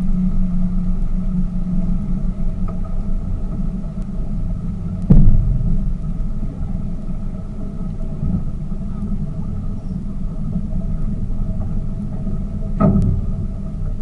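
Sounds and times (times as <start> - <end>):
boat engine droning: 0.0 - 14.0
loud thump: 5.1 - 6.4.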